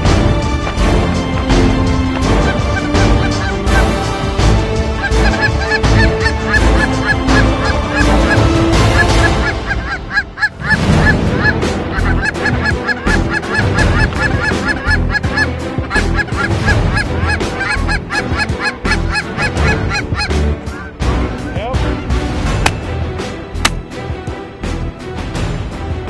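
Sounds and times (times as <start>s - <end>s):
geese honking: 1.0s - 21.6s.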